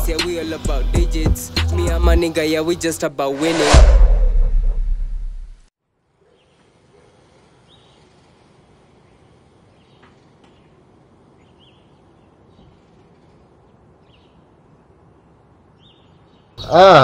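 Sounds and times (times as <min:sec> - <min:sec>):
faint outdoor background noise: 0:05.8 - 0:17.0
bird chirping: 0:07.6 - 0:08.2, 0:08.9 - 0:16.8.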